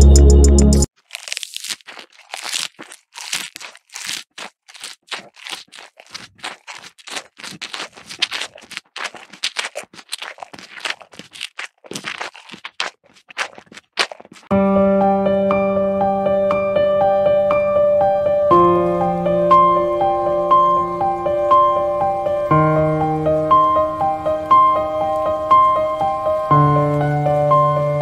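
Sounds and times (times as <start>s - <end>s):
crunching and munching of grass: 0.9s - 14.5s.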